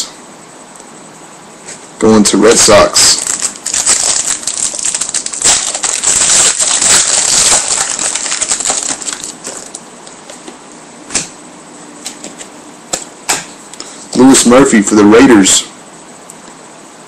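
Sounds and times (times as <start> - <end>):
foil wrapper crinkling: 3.0 - 9.8.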